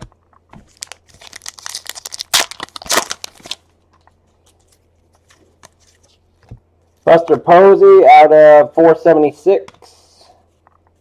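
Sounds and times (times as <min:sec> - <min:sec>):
wrapper tearing and crinkling: 0:00.7 - 0:03.6.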